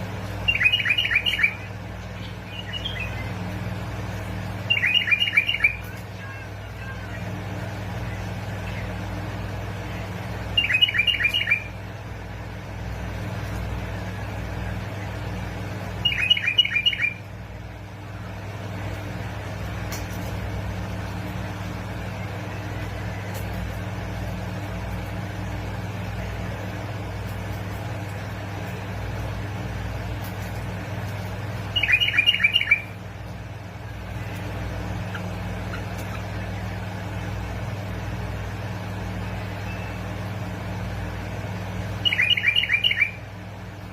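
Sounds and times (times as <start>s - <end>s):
steady low hum: 0.0s - 43.9s
bulbul chattering calls: 31.8s - 32.9s, 42.0s - 43.2s.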